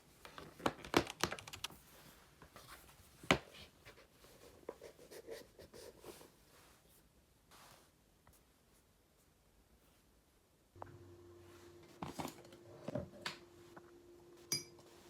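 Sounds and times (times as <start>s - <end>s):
typing on a computer keyboard: 0.6s - 1.8s.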